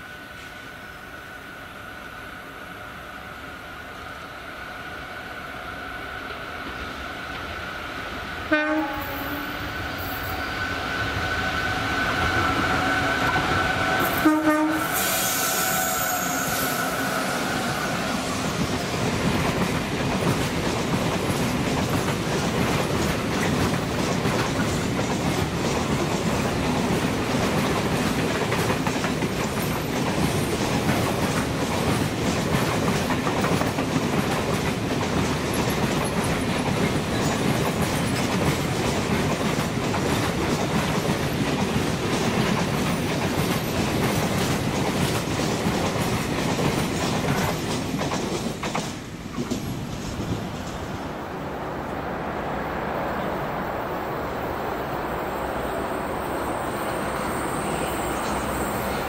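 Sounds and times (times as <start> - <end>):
train rumbling on tracks: 0.0 - 59.0
clickety-clack over rail joints: 17.8 - 51.2.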